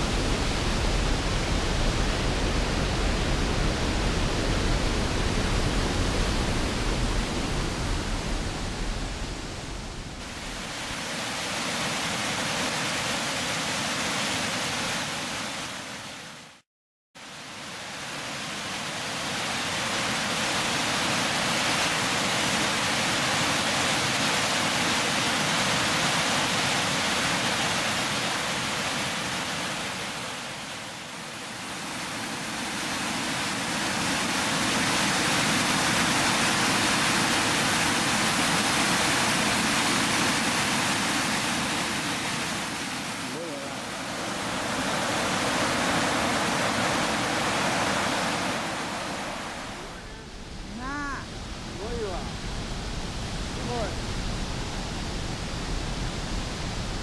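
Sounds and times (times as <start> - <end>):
waterfall rushing: 17.3 - 57.0.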